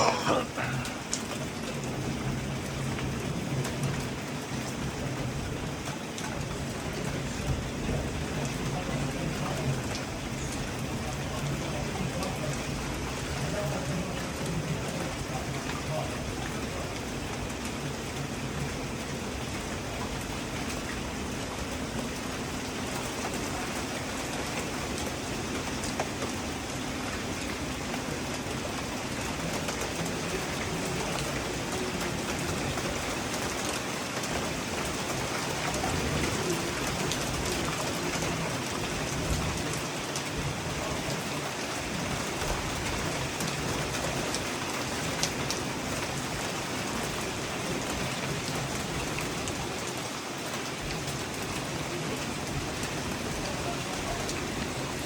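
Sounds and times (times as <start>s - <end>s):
raindrop taps: 0.0s - 55.0s
steady rain hiss: 0.0s - 55.0s.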